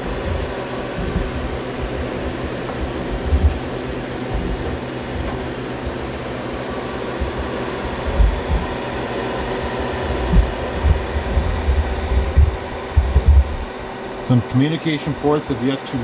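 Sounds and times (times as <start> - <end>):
low rumbles: 0.0 - 14.4
cooling fans running: 0.0 - 16.0
steady hum: 0.0 - 16.0.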